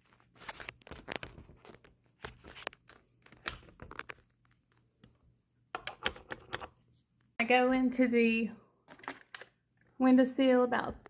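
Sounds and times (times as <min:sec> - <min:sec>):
handling rustles and clicks: 0:00.0 - 0:05.2.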